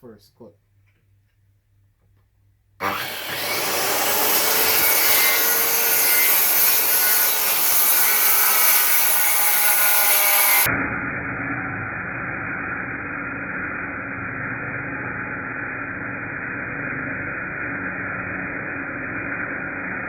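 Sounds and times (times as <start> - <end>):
circular saw cutting board: 2.8 - 10.7.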